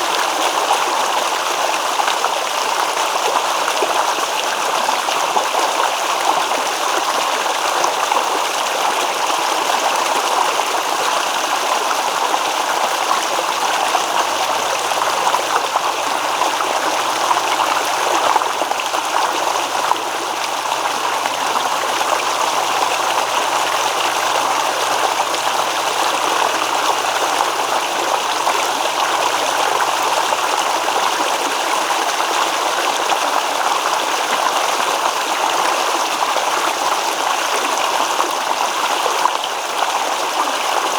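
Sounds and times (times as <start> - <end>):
stream babbling: 9.3 - 34.0.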